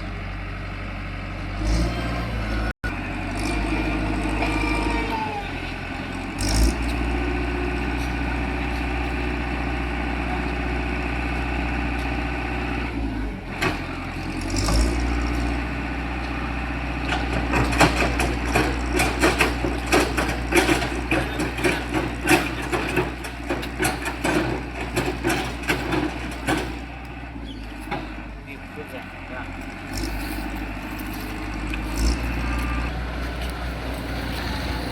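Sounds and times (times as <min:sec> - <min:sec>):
concrete mixer engine running: 0:00.0 - 0:34.9.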